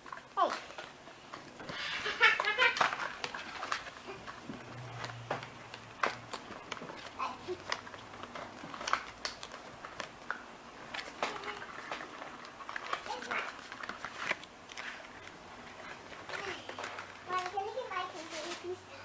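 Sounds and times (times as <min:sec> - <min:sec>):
cardboard clicks and taps: 0:02.4 - 0:15.4.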